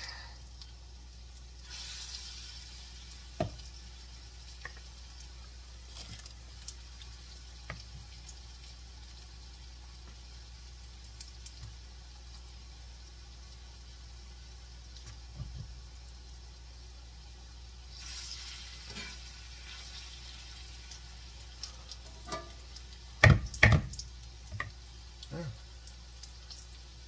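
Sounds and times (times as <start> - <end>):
food frying in oil: 0.0 - 27.0.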